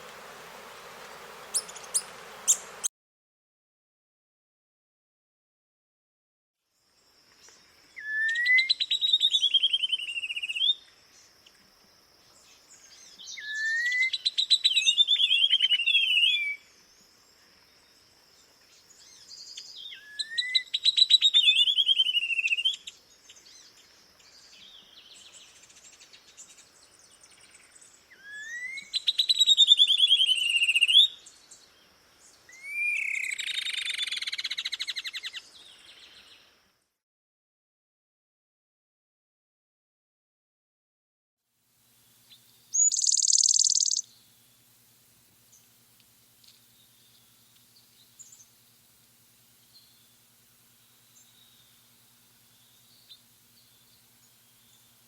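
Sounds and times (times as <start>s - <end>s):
songbird whistle and trill: 7.9s - 10.9s, 13.1s - 16.7s, 19.0s - 23.5s, 28.1s - 31.5s, 32.5s - 36.3s, 42.3s - 44.2s.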